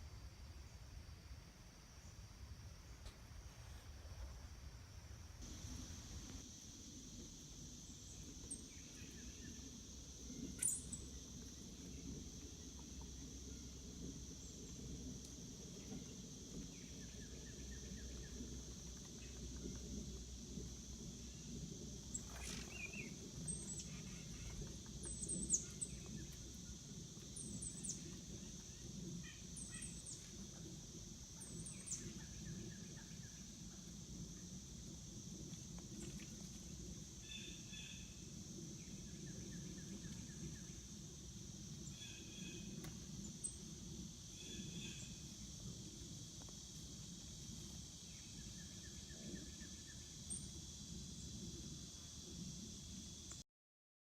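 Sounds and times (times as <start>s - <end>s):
high insect drone: 5.2s - 53.4s
small birds chirping: 10.4s - 11.1s.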